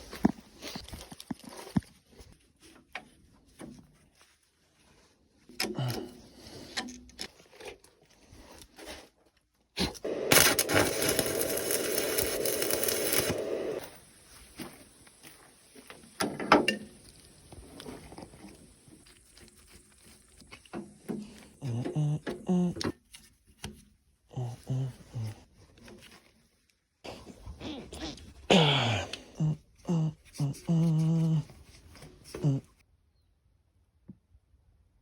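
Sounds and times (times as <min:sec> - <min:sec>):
small motor running: 0:10.0 - 0:13.9.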